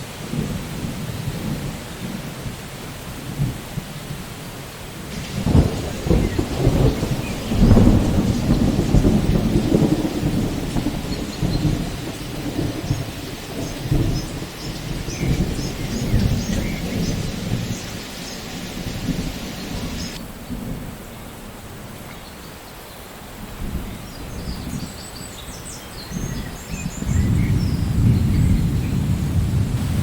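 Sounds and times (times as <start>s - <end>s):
steady rain: 0.0s - 30.0s
thunder rolling: 5.1s - 20.9s, 27.0s - 30.0s.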